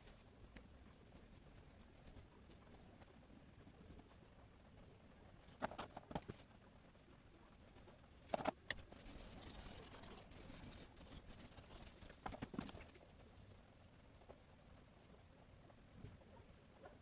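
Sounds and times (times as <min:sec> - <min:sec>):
pencil scratching paper: 0:07.8 - 0:12.7.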